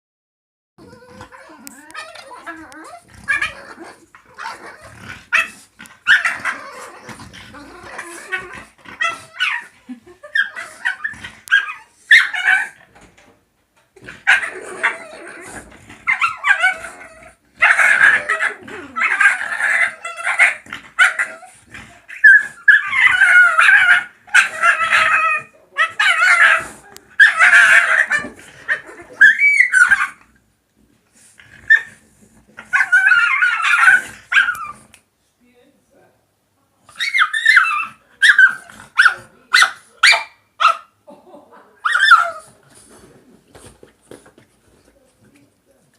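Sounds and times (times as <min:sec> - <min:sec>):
dogs squealing and yipping: 0:00.9 - 0:07.1, 0:07.7 - 0:12.8, 0:14.2 - 0:15.2, 0:16.0 - 0:30.2, 0:31.6 - 0:32.0, 0:32.6 - 0:34.9, 0:36.9 - 0:40.9, 0:41.8 - 0:42.5.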